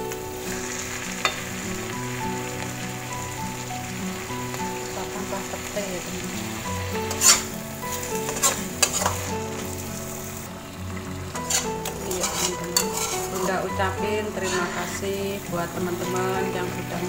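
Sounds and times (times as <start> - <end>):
sauce sizzling in a wok: 0.0 - 17.0
metal spatula scraping a pan: 7.0 - 9.8, 11.3 - 15.2.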